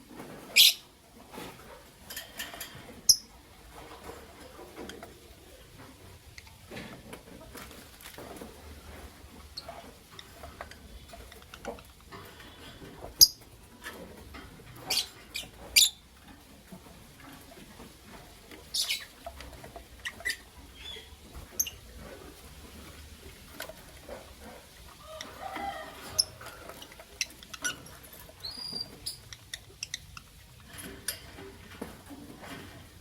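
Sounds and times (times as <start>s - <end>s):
faint scratching and shuffling: 0.0s - 33.0s
lovebirds chirping: 0.5s - 0.9s, 14.8s - 16.0s, 18.6s - 19.3s, 19.9s - 22.0s, 25.0s - 30.6s.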